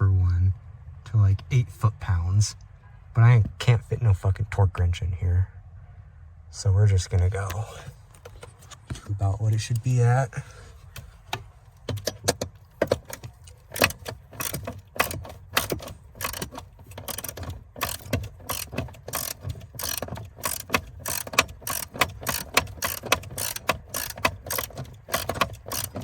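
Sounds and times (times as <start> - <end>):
ratchet wrench clicking: 11.9 - 26.0.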